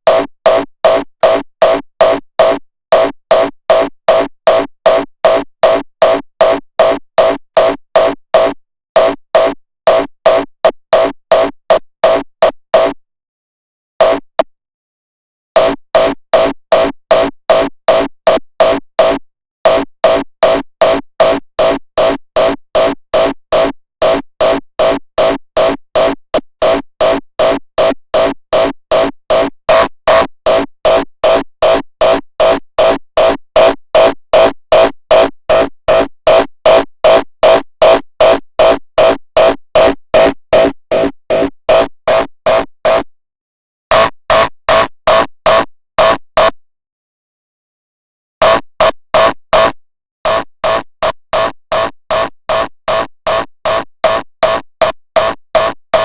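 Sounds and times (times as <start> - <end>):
distorted kick drum loop: 5.3 - 13.0, 14.0 - 14.4.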